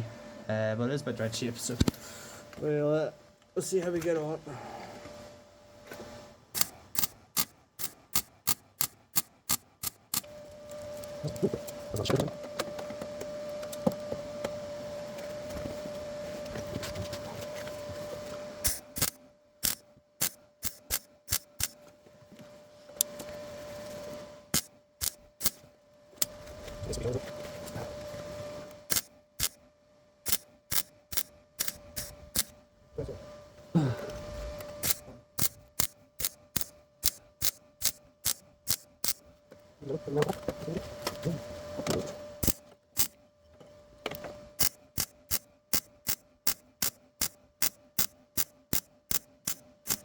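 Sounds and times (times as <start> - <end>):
welder crackling: 6.5 - 12.1, 18.6 - 21.8, 23.0 - 27.0, 28.6 - 29.6, 30.2 - 32.6, 34.6 - 39.3, 42.4 - 43.2, 44.6 - 50.0.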